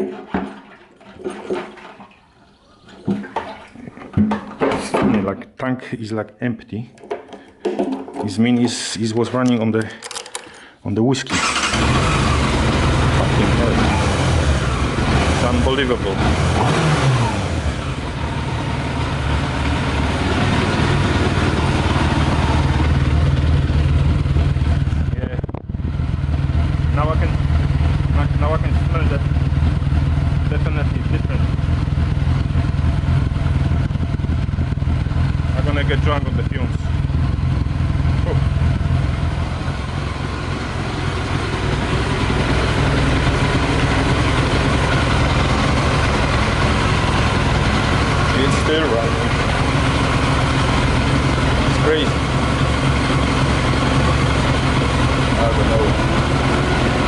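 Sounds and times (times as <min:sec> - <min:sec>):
motorcycle engine idling: 0:11.4 - 0:16.4, 0:17.4 - 0:57.0.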